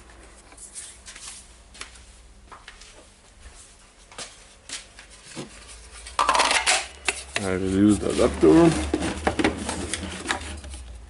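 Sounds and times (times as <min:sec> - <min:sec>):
scraping rustle: 0:07.2 - 0:11.0
plastic radio being handled: 0:08.2 - 0:11.0.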